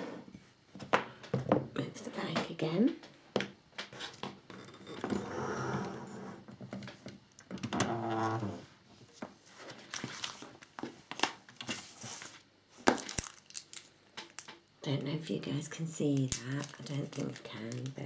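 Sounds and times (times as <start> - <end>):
plastic bag rustling: 9.5 - 14.6, 16.0 - 18.0
small plastic parts clicking: 13.0 - 14.6, 16.2 - 18.0.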